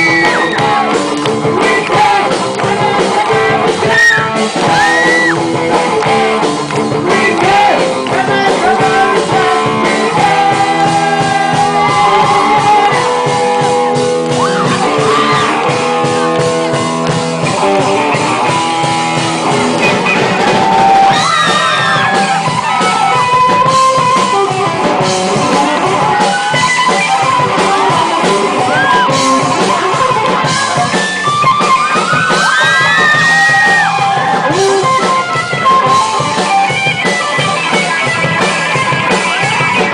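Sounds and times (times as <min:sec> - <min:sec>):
person singing: 0:00.0 - 0:17.0
rock band music: 0:00.0 - 0:39.9.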